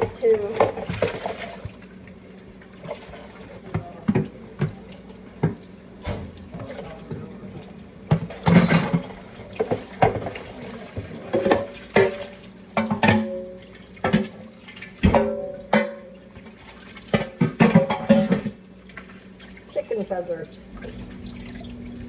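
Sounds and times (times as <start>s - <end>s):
dishes and pans clattering: 0.0s - 1.7s, 2.8s - 18.6s
water running from tap: 0.0s - 22.0s.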